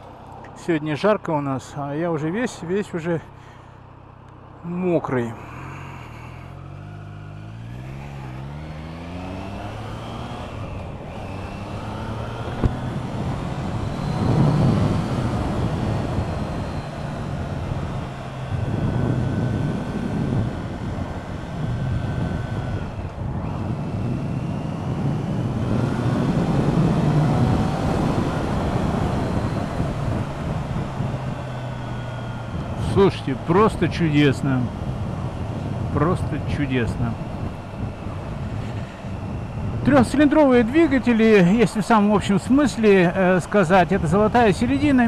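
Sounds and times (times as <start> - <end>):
motorcycle engine accelerating: 5.4 - 45.0
wind rush over microphone: 9.4 - 31.6, 34.6 - 40.2.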